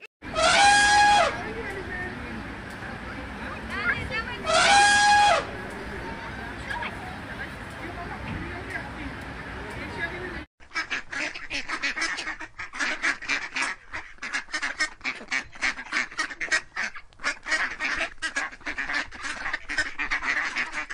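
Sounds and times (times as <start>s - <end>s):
mallard quacking: 10.6s - 20.9s.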